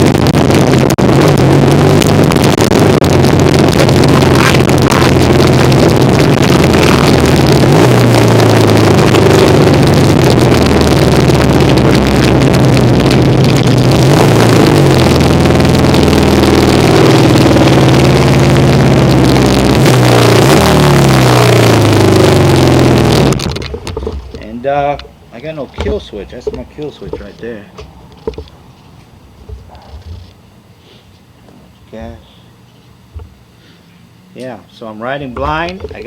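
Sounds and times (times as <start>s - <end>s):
motorcycle engine revving: 0.0s - 24.9s.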